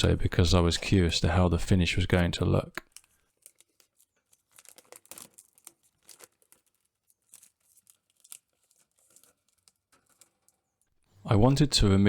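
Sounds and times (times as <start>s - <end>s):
plastic film peeling: 2.1s - 11.0s.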